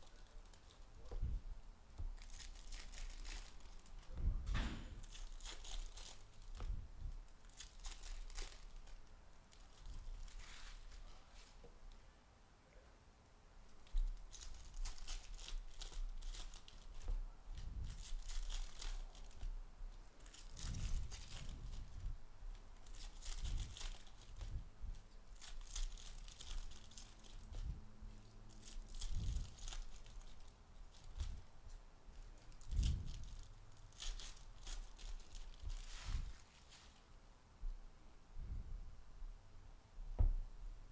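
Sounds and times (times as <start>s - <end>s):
card pack wrappers tearing: 2.2s - 4.1s, 5.0s - 6.6s, 7.4s - 10.8s, 13.8s - 17.0s, 17.8s - 19.5s, 20.2s - 21.9s, 22.8s - 24.6s, 25.3s - 27.7s, 28.5s - 31.4s, 32.4s - 36.0s
dull handling thumps: 40.1s - 40.5s.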